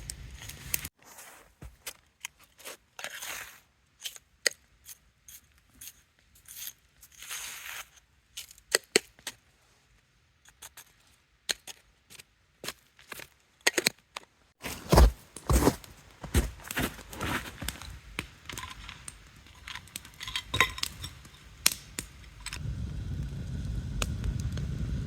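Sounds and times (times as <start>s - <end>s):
short rustling scrapes: 0.4s - 1.8s, 14.6s - 18.0s.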